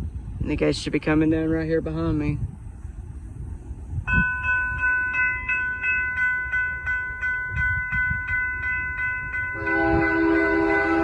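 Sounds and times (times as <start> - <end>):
railroad crossing bells ringing: 3.8 - 11.0
locomotive horn: 9.6 - 11.0.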